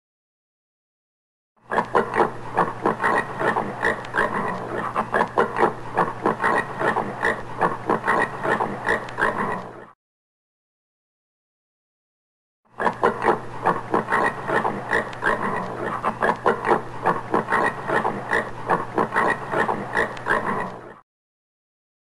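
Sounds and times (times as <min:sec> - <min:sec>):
warthog grunting: 0:12.8 - 0:21.0.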